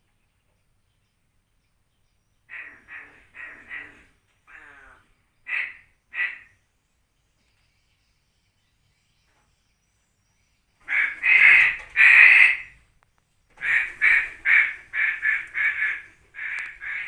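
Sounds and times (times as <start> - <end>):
crow cawing: 2.5 - 6.5, 10.8 - 12.8, 13.6 - 17.0.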